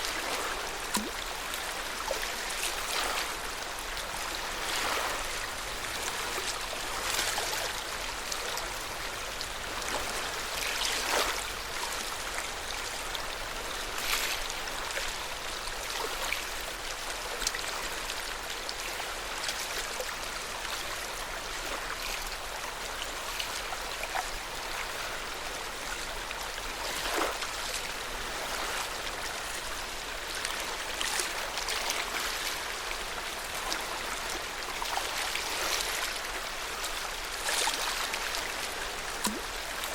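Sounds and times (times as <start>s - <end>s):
small water splashes: 0.0s - 8.7s, 9.6s - 12.5s, 26.7s - 39.9s
water lapping: 0.0s - 12.8s, 23.2s - 39.9s.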